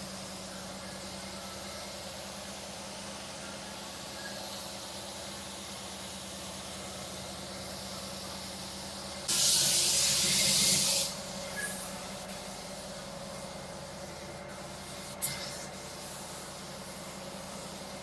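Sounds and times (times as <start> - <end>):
pneumatic air gun hiss: 9.2 - 12.7, 13.9 - 18.0.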